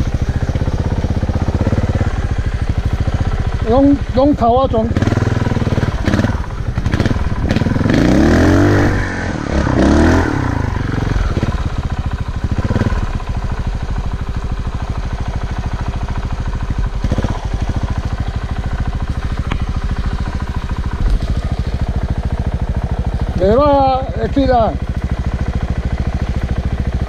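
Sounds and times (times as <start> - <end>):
motorcycle engine idling: 0.0 - 27.0
motorcycle engine revving: 0.0 - 27.0.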